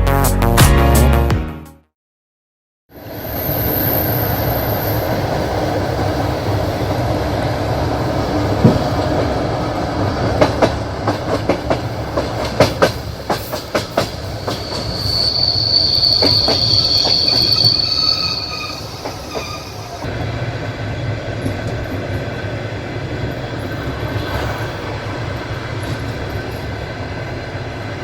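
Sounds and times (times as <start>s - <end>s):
train carriage rumble: 3.2s - 28.0s
high wheel squeal: 14.1s - 20.1s.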